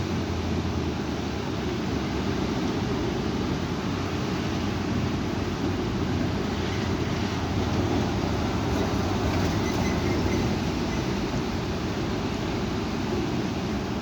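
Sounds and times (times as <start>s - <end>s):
strong wind blowing: 0.0s - 14.0s
wind buffeting microphone: 2.8s - 14.0s.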